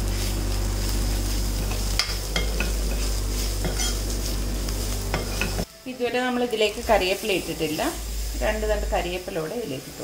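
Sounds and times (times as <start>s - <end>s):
onions sizzling in hot oil: 0.0s - 10.0s
spoon clinking and scraping pot: 1.6s - 4.2s, 5.1s - 5.7s.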